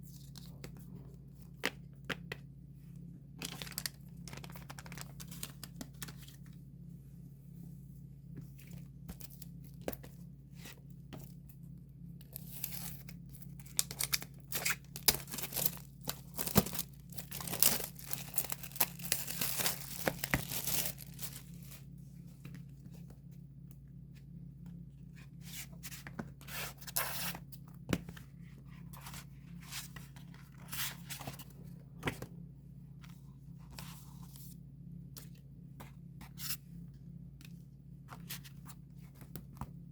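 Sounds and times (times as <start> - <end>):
steady low hum: 0.0 - 39.9
plastic wrapping crinkling: 3.4 - 6.2, 13.6 - 21.8.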